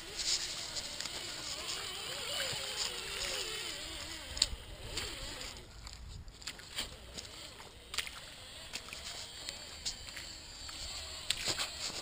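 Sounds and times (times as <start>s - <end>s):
electric motor whining: 0.0s - 5.7s, 6.8s - 12.0s.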